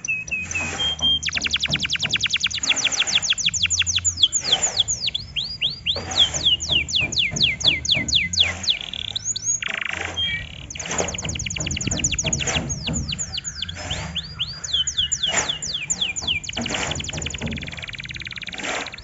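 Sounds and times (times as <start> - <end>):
canary singing: 0.0 - 19.0.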